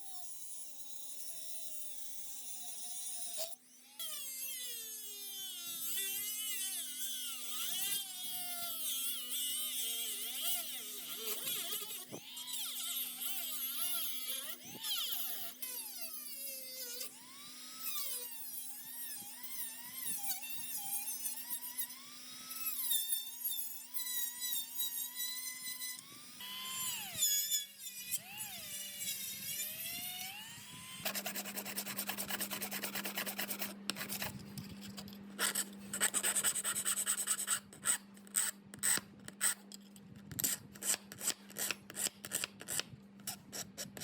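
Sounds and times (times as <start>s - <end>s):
power tool whining: 1.0s - 36.2s.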